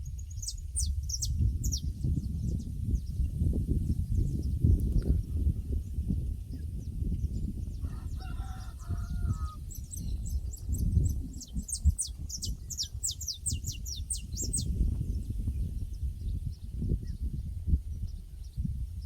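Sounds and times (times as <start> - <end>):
small bird singing: 0.0 - 19.0
farm fowl calling: 7.9 - 9.6.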